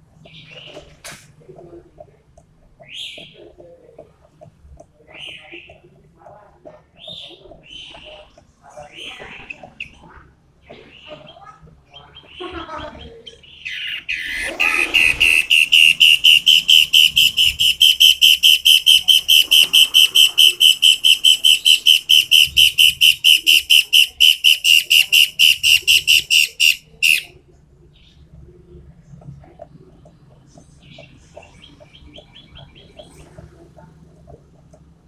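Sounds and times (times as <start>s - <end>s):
bird calling rapid sharp notes: 13.5s - 27.3s.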